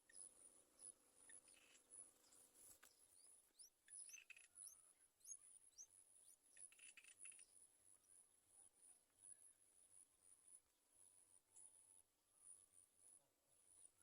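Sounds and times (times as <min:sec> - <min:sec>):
insect chirring: 0:00.1 - 0:03.0, 0:03.8 - 0:04.7, 0:06.6 - 0:07.5.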